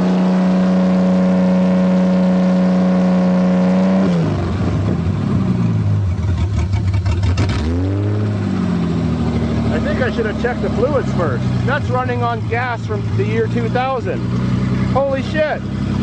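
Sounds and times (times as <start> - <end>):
car engine revving high: 0.0 - 16.0
rapid engine ticking: 6.1 - 7.5, 9.0 - 16.0.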